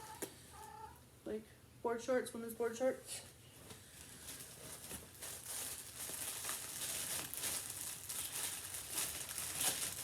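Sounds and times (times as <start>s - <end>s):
clothes and packaging rustling: 3.4s - 10.0s.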